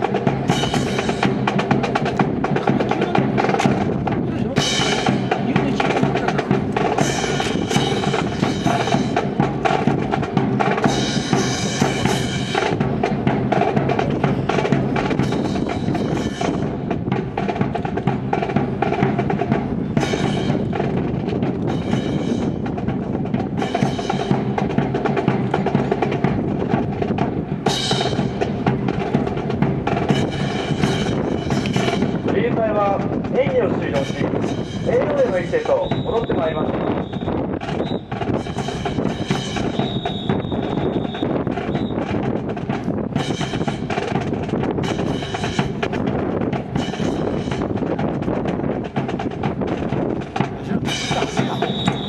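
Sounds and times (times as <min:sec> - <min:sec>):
bass drum: 0:00.0 - 0:52.0
marching band music: 0:00.0 - 0:52.0
snare rolls: 0:27.9 - 0:52.0.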